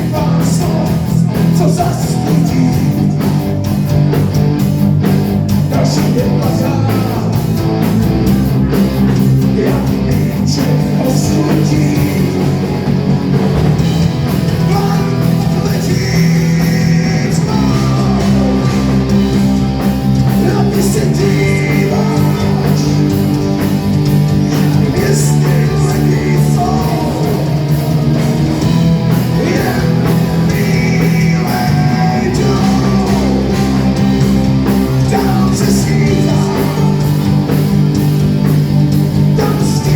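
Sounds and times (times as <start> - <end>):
person singing: 0.0 - 3.4, 9.1 - 13.0, 14.4 - 23.7, 24.4 - 28.1, 29.1 - 37.9, 39.2 - 39.9
drum kit: 0.0 - 39.9
electric guitars: 0.0 - 39.9.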